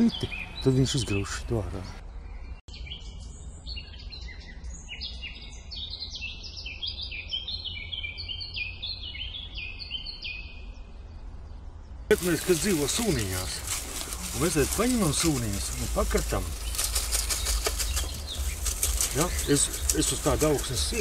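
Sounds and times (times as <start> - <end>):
songbirds chirping and trilling: 0.0 - 21.0
steady low rumble: 10.8 - 21.0.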